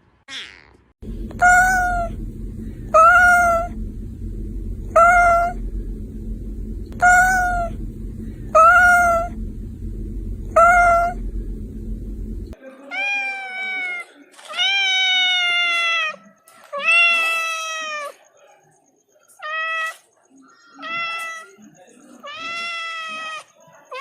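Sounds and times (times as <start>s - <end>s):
low hum: 1.0s - 12.6s.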